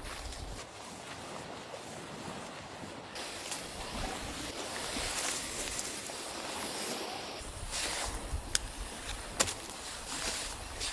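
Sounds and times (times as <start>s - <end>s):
blizzard wind blowing: 3.2s - 10.9s.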